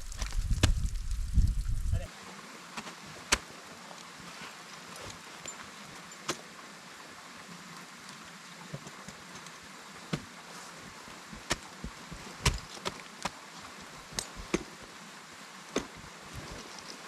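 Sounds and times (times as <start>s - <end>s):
ice axes striking ice: 11.4s - 13.0s, 14.0s - 14.7s.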